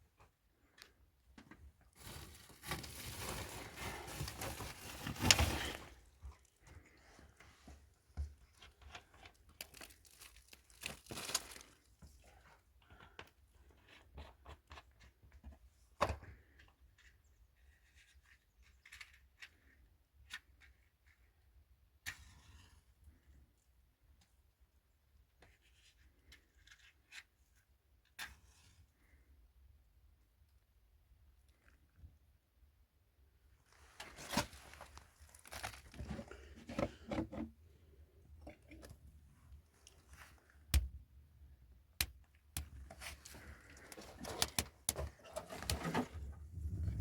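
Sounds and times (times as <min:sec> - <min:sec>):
rustling and crinkling: 0:00.1 - 0:19.7, 0:33.5 - 0:41.0, 0:42.2 - 0:47.0.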